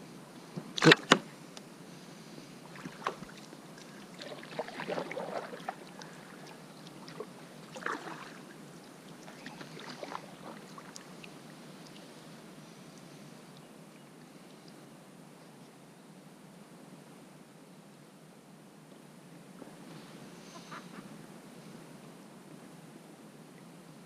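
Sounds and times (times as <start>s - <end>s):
small water splashes: 2.7s - 12.2s.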